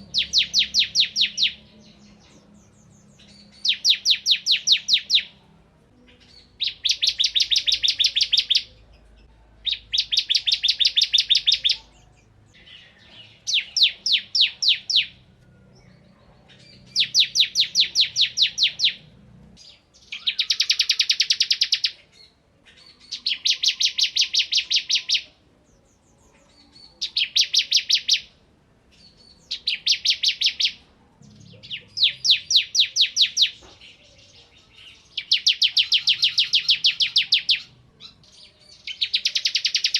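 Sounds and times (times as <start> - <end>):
bird singing rapid bursts: 0.0 - 5.4, 6.3 - 8.8, 9.6 - 11.9, 12.7 - 15.3, 16.6 - 22.4, 23.0 - 25.3, 26.9 - 28.4, 29.0 - 33.6, 34.9 - 39.9.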